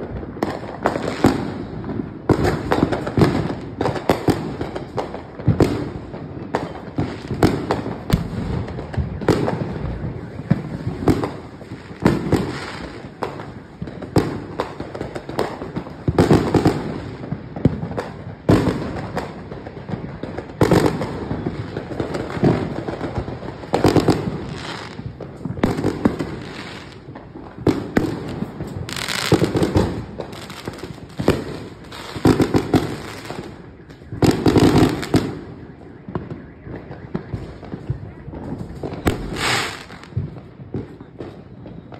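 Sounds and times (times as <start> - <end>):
fireworks bangs and pops: 0.0 - 41.9.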